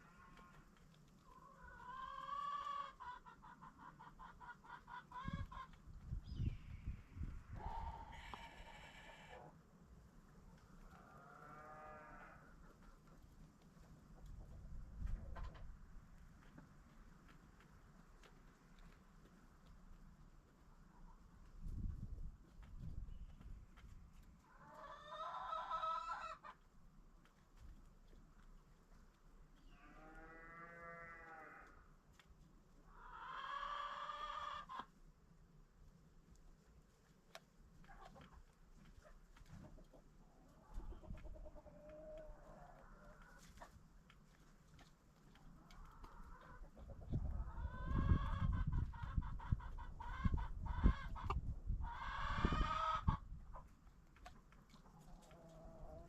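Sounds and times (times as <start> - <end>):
chickens calling: 0.0 - 9.6, 22.5 - 26.7, 32.8 - 35.0, 37.8 - 56.0.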